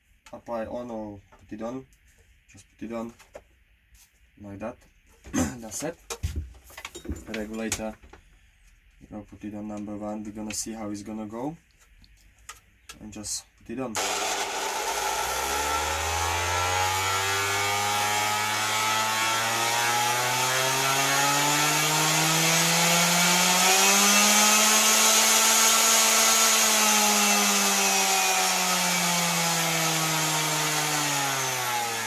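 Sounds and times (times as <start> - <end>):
orbital sander running: 14.0 - 32.0.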